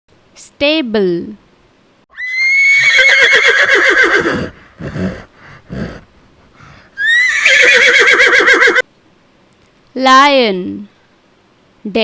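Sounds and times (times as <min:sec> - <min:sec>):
horse whinnying: 0:02.1 - 0:06.1, 0:07.0 - 0:08.8
horse breaths: 0:04.2 - 0:07.2.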